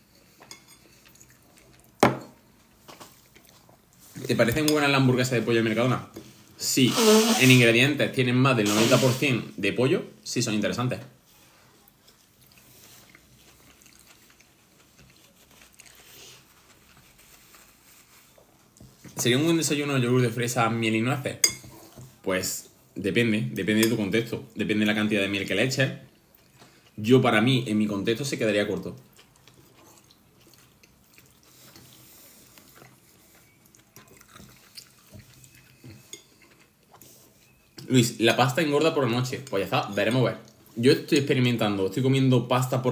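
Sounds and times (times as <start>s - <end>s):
faint chewing: 0.0s - 4.8s, 11.3s - 19.2s, 26.0s - 27.0s, 28.7s - 38.0s.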